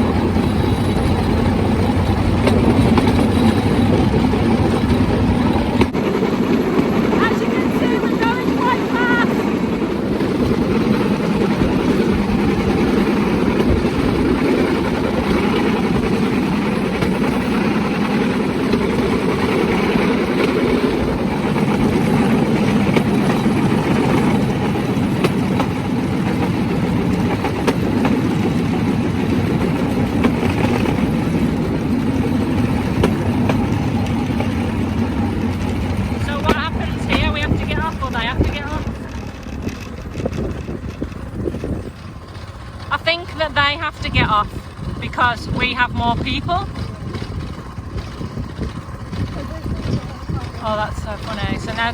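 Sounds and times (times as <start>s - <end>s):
platform and wheels rattling: 0.0s - 51.9s
small engine drone: 0.0s - 51.9s.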